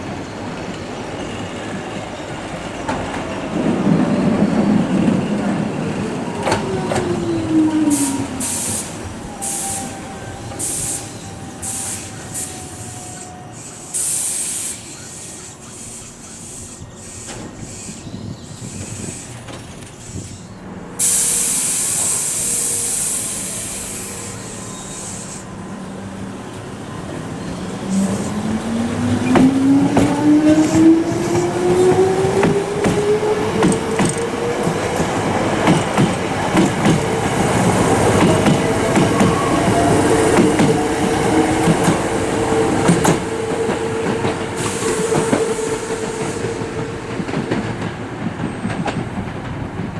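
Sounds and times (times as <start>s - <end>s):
electric train braking whine: 3.8s - 47.8s
air hissing: 7.8s - 25.6s, 36.6s - 47.1s.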